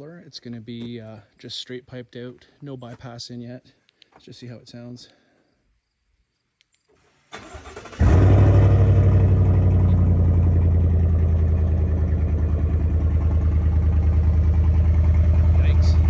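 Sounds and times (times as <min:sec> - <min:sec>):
car engine starting and idling: 0:07.3 - 0:16.0.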